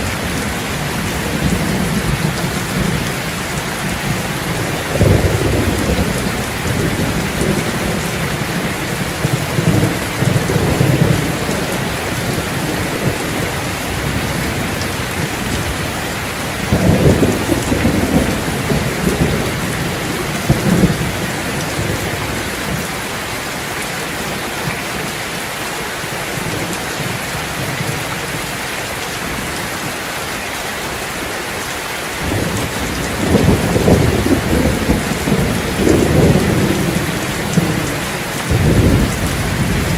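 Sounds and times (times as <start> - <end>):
steady rain: 0.0 - 39.9
low rolls of thunder: 3.8 - 22.8, 32.2 - 39.9.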